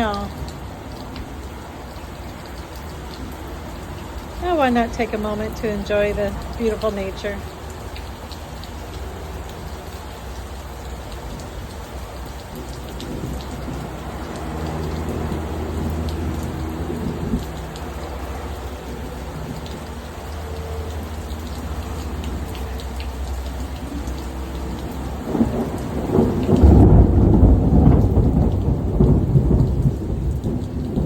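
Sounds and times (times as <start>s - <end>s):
steady rain: 0.0s - 31.0s
thunder rumbling: 23.8s - 31.0s
loud thunder peal: 25.3s - 31.0s.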